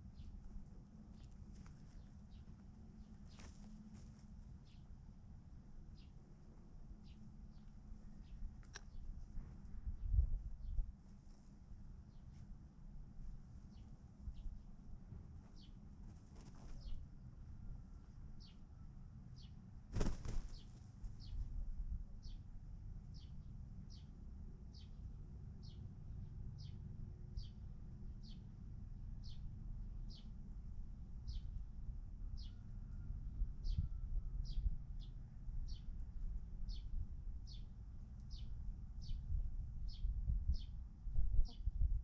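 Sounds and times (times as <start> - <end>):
rustle or wing flap: 1.2 - 4.4, 15.2 - 17.1, 19.9 - 21.5.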